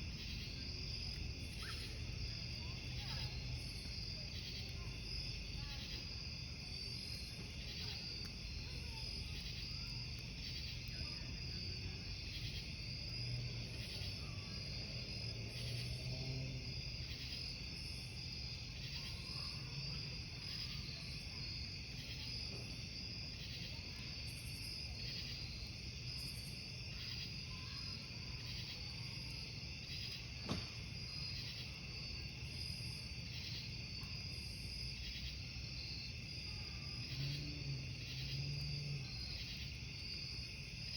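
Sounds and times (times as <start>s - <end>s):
campfire hiss: 0.0s - 40.9s
crickets chirping: 0.0s - 40.9s
burning wood pop: 30.4s - 31.0s.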